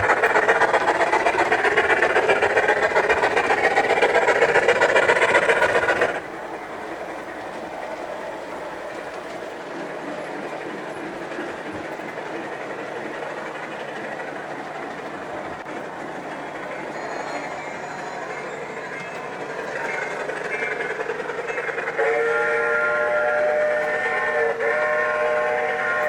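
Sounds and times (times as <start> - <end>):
model train wheels clattering: 0.0 - 26.0.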